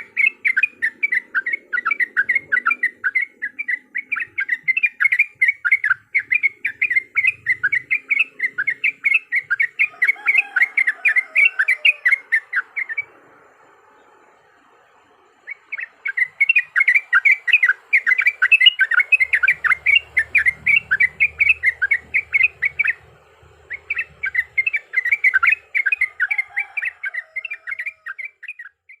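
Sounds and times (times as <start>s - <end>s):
bird chattering song: 0.0s - 29.0s.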